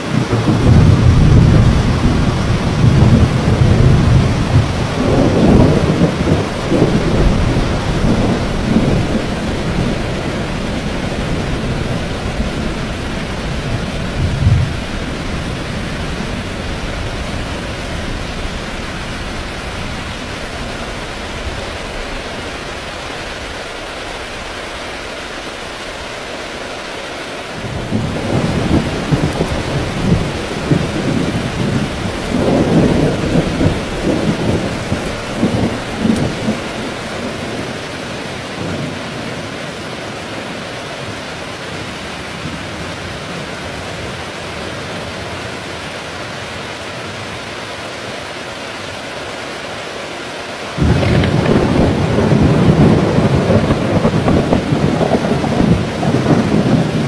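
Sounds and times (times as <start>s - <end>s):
thunder rumbling: 0.0s - 24.6s, 27.6s - 39.5s, 50.8s - 57.0s
heavy rain falling: 0.0s - 57.0s.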